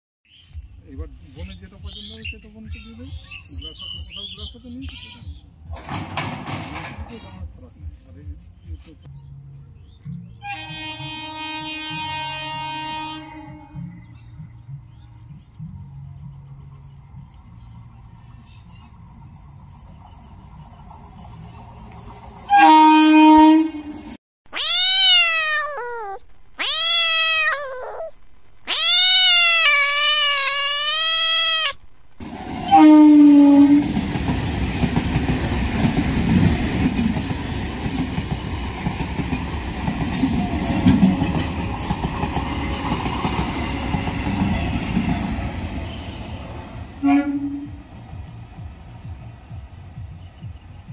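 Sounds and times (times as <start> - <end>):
train wheels rumbling and clacking: 5.6 - 7.7, 18.7 - 22.5, 33.6 - 47.0
train horn blast: 10.4 - 14.0, 22.5 - 24.2, 32.6 - 34.0, 45.8 - 48.0
cat meowing: 24.5 - 31.8.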